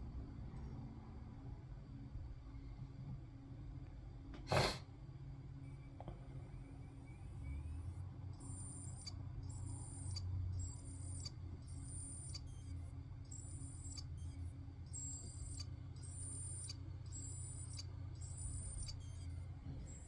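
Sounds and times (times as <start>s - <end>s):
spinning drive hum: 5.4s - 20.0s
hard drive chirping: 5.7s - 20.0s
hard drive clicks: 5.9s - 20.0s.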